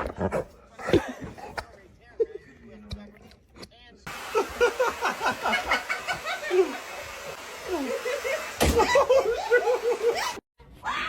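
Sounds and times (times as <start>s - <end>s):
person laughing: 4.2s - 7.0s, 7.6s - 10.4s.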